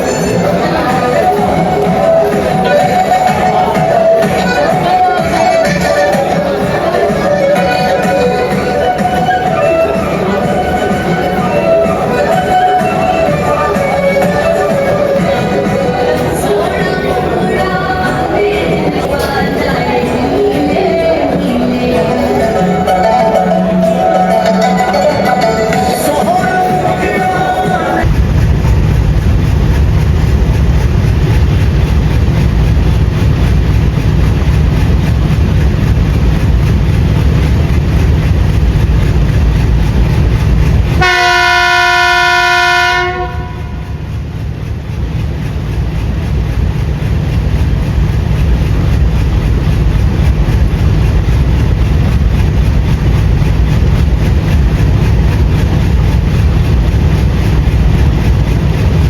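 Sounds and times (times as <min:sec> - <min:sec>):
train rumbling: 0:00.0 - 0:59.0
locomotive horn blast: 0:41.0 - 0:43.9.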